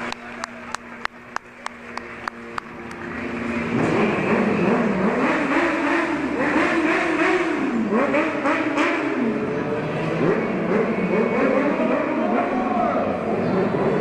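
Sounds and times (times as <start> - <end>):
sharp claps: 0.0 - 3.1
motorcycle engine revving: 0.0 - 14.0.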